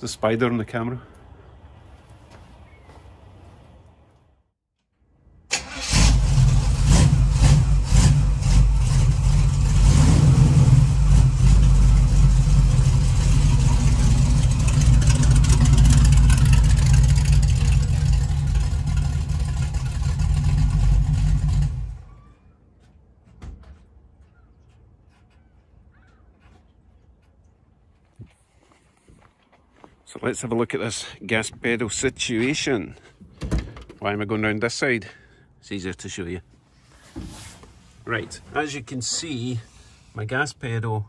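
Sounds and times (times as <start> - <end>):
car engine starting and revving: 5.5 - 22.1.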